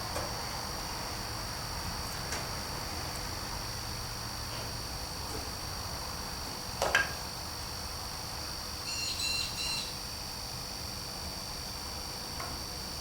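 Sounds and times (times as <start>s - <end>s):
crickets chirring: 4.8s - 13.0s.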